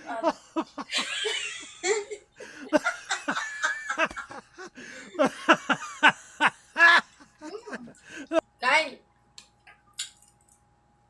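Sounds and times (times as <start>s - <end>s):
people laughing and giggling: 0.0s - 8.4s.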